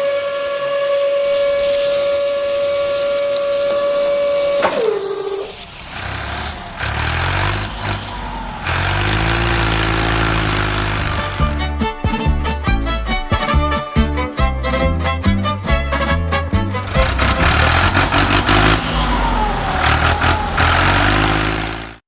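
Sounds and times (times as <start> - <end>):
high whine: 0.0 - 12.0, 16.8 - 22.0
vehicle engine revving: 1.2 - 12.0, 16.6 - 22.0.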